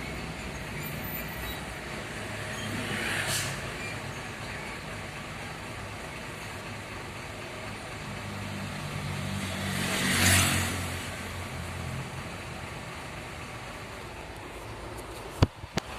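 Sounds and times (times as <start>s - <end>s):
traffic noise: 0.0s - 15.9s
vehicle passing by: 8.3s - 12.3s.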